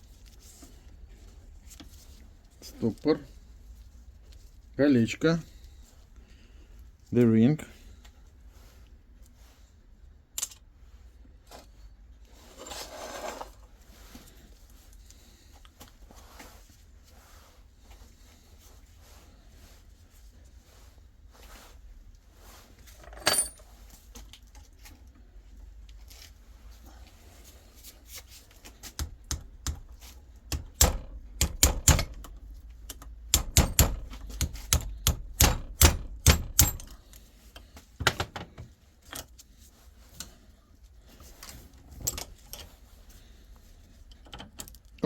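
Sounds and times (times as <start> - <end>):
metal parts clinking: 23.0 - 23.8, 36.1 - 37.1.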